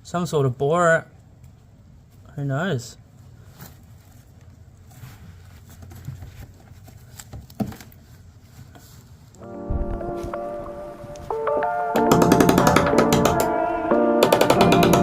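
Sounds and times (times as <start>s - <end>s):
low rumble: 9.6s - 11.3s.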